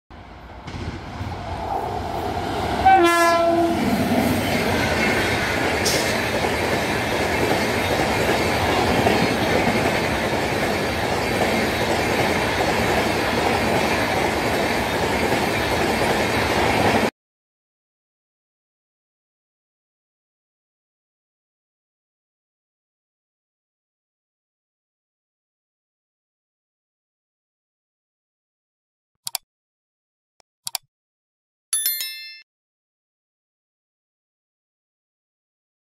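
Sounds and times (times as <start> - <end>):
train passing at speed: 0.1 - 17.1
train horn blast: 2.8 - 3.9.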